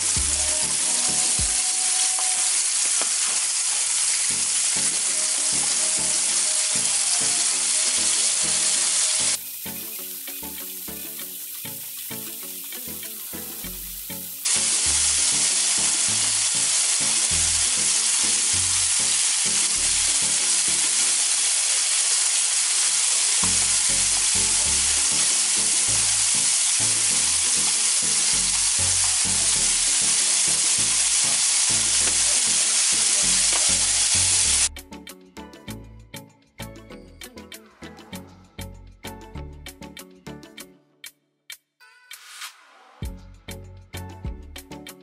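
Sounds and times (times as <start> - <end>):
music: 0.0 - 3.4, 4.0 - 21.5, 23.4 - 45.0
chicken frying in oil: 0.0 - 34.7.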